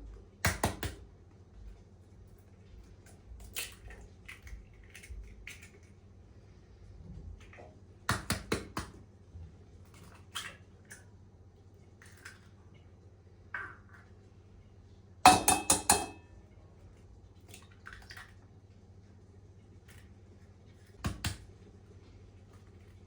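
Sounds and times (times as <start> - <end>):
dishes and cutlery clinking: 15.3 - 16.3.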